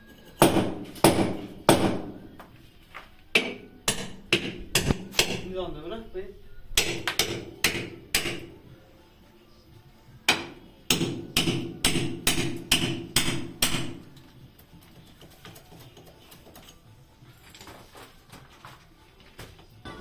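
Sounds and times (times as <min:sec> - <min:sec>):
hammer striking metal: 0:00.4 - 0:02.2, 0:03.4 - 0:05.5, 0:06.8 - 0:08.5, 0:10.3 - 0:14.1.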